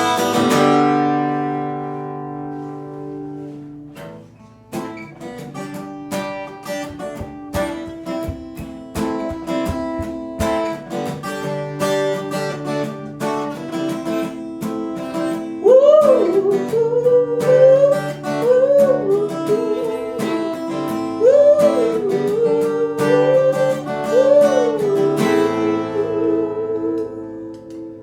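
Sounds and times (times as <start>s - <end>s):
acoustic guitar playing: 0.0s - 28.0s.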